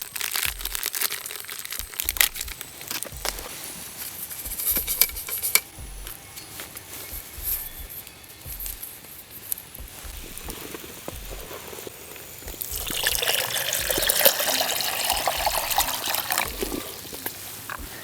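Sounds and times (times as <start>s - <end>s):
water pouring: 12.2s - 17.5s.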